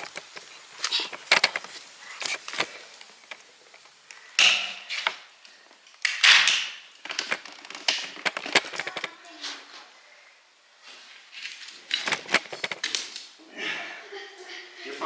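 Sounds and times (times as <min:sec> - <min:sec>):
cameras being handled: 0:00.0 - 0:04.1, 0:07.0 - 0:09.1, 0:11.3 - 0:13.3
person climbing through window: 0:00.0 - 0:09.7, 0:11.2 - 0:13.4.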